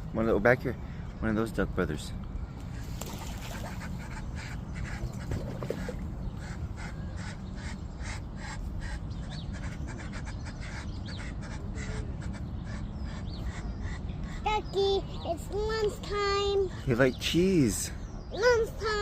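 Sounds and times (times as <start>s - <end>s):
low background rumble: 0.0s - 17.0s
ducks quacking: 3.2s - 14.1s.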